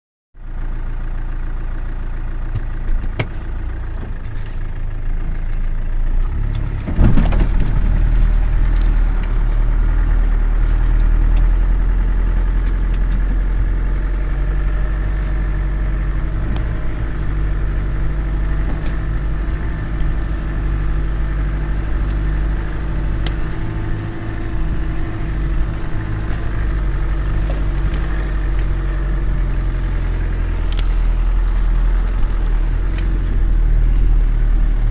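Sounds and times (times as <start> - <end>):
vehicle engine running: 0.4 - 34.9
clunk: 6.3 - 34.9
clicks and knocks: 6.5 - 34.1.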